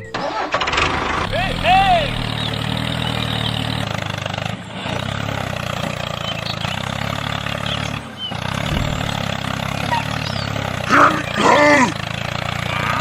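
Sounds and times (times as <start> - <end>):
tractor engine chugging: 0.0 - 13.0
faint bird chirps: 2.0 - 4.0, 5.7 - 11.4.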